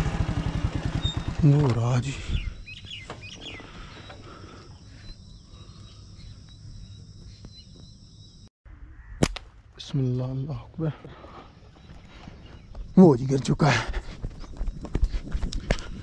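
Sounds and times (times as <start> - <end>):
sharp snap: 9.2 - 9.5.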